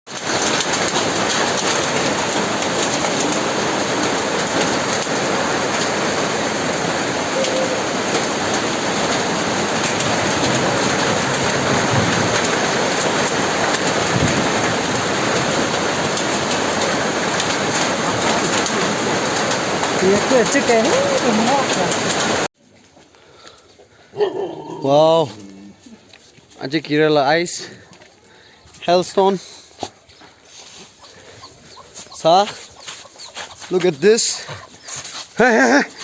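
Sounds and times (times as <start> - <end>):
heavy hail pelting hard surfaces: 0.1 - 22.5, 32.1 - 36.0.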